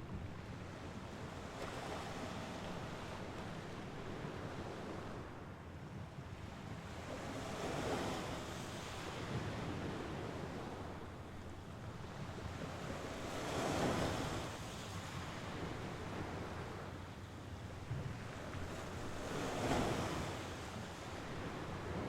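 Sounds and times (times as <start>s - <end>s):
waves washing onto shore: 7.0s - 22.0s.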